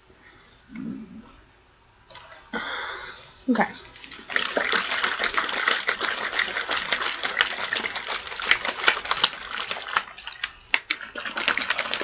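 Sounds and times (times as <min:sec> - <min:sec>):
liquid sloshing: 0:02.1 - 0:02.5, 0:03.6 - 0:12.0
rapid clicks and rattles: 0:04.1 - 0:12.0.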